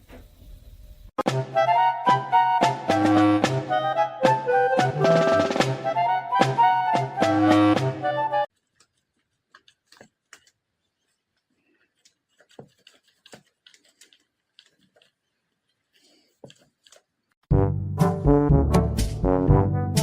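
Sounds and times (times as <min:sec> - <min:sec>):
brass and drums music: 0:01.2 - 0:08.5, 0:17.5 - 0:20.0
faint small clicks and taps: 0:08.6 - 0:15.8.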